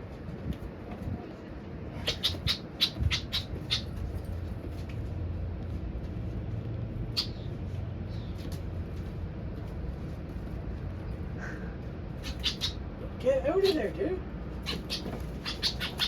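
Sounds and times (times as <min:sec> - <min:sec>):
low steady hum: 0:00.0 - 0:16.0
starling harsh calls: 0:02.0 - 0:04.0, 0:12.2 - 0:12.9, 0:14.6 - 0:16.0.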